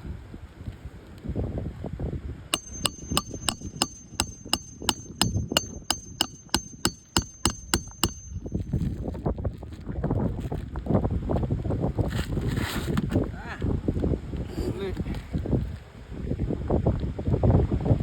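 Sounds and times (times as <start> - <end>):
hammer blows on nail: 2.6 - 8.6.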